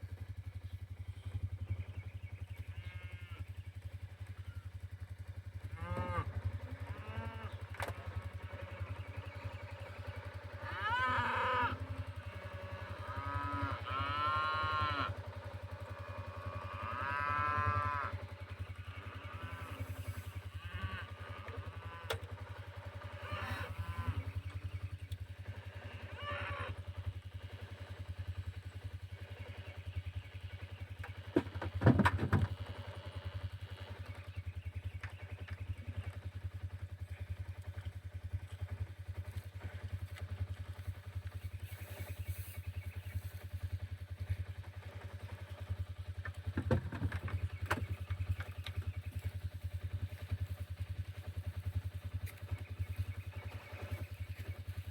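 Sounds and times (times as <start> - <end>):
engine idling: 0.0 - 54.9
cattle mooing: 2.8 - 3.4, 5.8 - 7.6, 10.6 - 15.3, 15.9 - 22.3, 23.0 - 24.3, 25.8 - 26.8.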